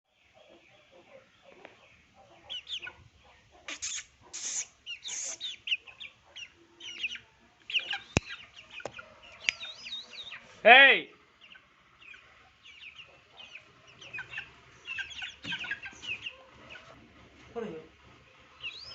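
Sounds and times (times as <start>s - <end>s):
parrot chicks chirping: 0.1s - 10.6s, 11.3s - 17.0s, 18.4s - 18.9s
harsh rasping squawks: 3.6s - 5.9s.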